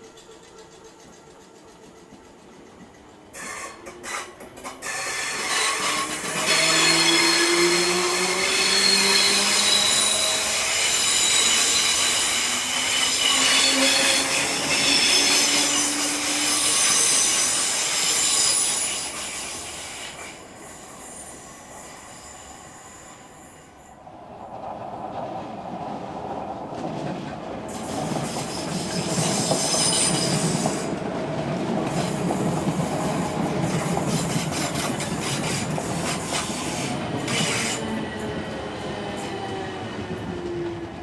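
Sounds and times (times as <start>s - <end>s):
train wheel clicks over rail joints: 0.0s - 6.8s
train running noise: 0.0s - 41.0s
wheel squeal: 3.4s - 23.8s, 27.8s - 30.9s.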